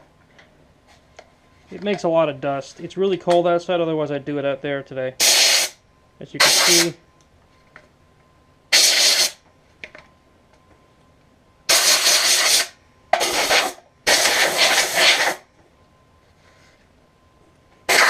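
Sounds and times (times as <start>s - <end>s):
air blow gun hissing blasts: 5.2s - 5.8s, 6.4s - 6.9s, 8.7s - 9.4s, 11.7s - 15.4s.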